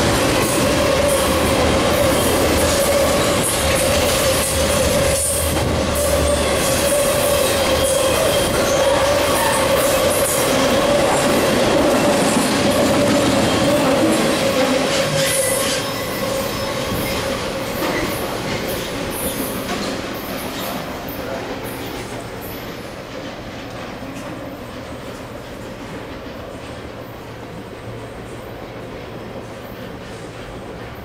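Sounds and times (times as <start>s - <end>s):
freight train wheels rumbling: 0.0s - 31.0s
high wheel squeal: 0.6s - 11.2s, 12.9s - 20.8s.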